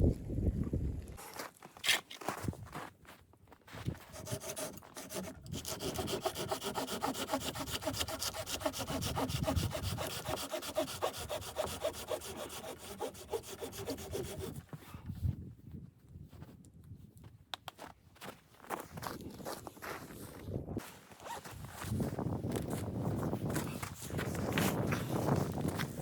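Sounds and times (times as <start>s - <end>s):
hand saw cutting wood: 4.1s - 14.6s.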